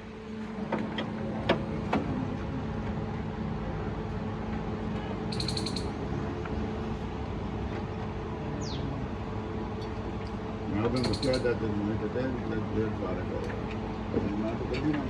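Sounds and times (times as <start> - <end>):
steady background hum: 0.0 - 15.0
sharp clicks: 5.3 - 5.9, 11.0 - 11.5
high-pitched chirping call: 5.3 - 6.0, 11.0 - 11.5.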